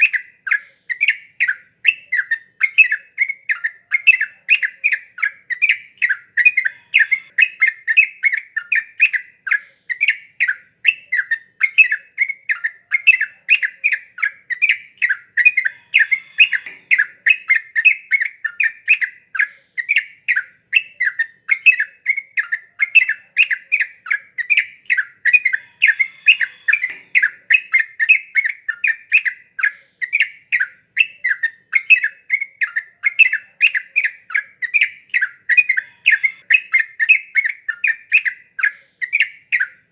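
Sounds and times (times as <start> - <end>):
bulbul chirping: 0.0 - 39.8.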